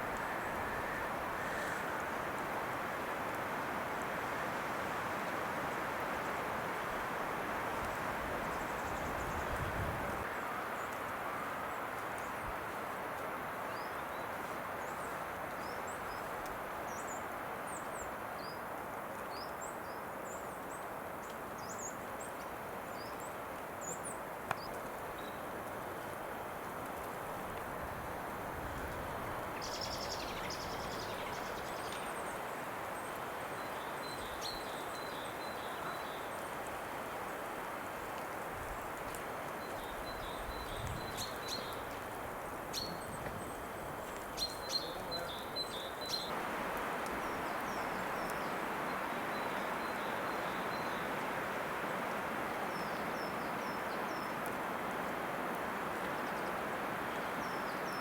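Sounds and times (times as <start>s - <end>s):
faint clicks: 24.4s - 24.9s
small birds chirping: 39.6s - 46.4s.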